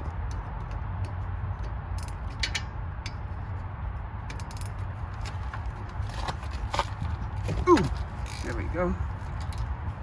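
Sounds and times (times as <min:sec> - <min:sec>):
steady low rumble: 0:00.0 - 0:10.0
spanner clicking on metal: 0:00.2 - 0:03.2, 0:04.3 - 0:04.9.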